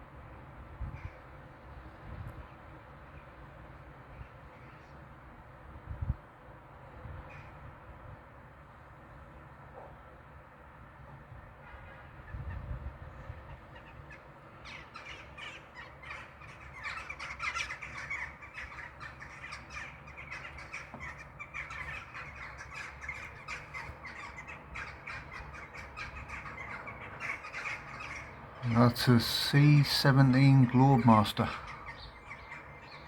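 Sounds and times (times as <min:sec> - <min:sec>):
crow-like bird calls: 0:12.2 - 0:33.0.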